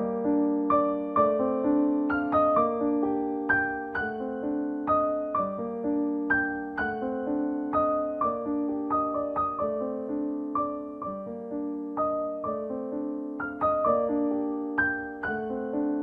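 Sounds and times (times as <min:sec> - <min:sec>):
solo piano melody: 0:00.0 - 0:16.0.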